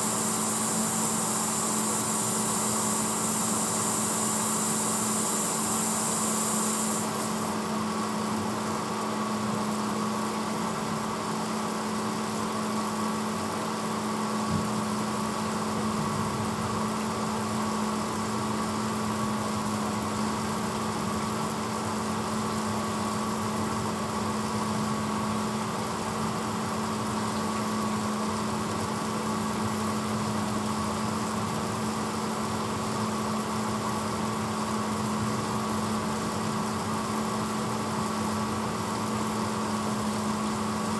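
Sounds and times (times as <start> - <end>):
high hiss: 0.0 - 7.8.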